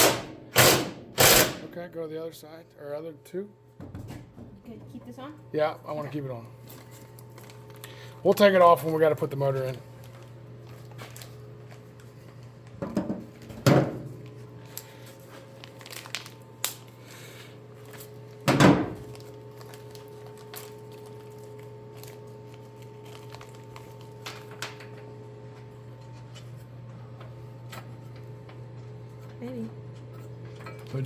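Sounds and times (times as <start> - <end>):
loud metal clunks: 0.0 - 1.8.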